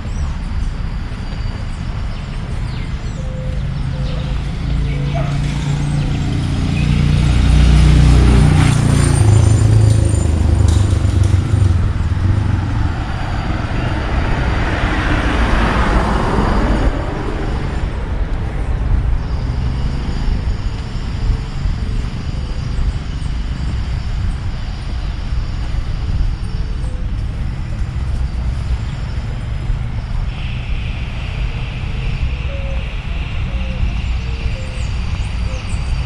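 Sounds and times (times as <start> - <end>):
low rumble of traffic: 0.0 - 36.0
car passing close by: 4.2 - 20.6.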